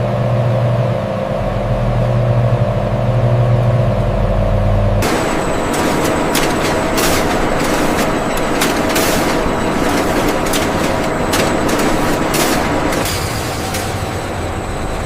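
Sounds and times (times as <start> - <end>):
factory machinery din: 5.0 - 15.0.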